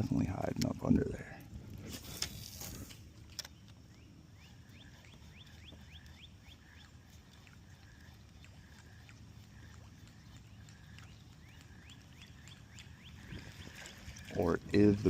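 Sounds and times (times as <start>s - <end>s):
low steady hiss: 0.0s - 15.0s
bird chirping: 3.3s - 15.0s.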